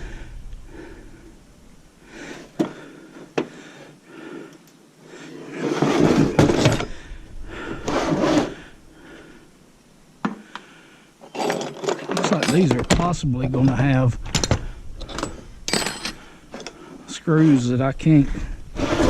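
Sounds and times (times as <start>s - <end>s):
metal unit scraping and sliding: 5.3s - 7.0s, 7.8s - 8.7s, 18.7s - 19.0s.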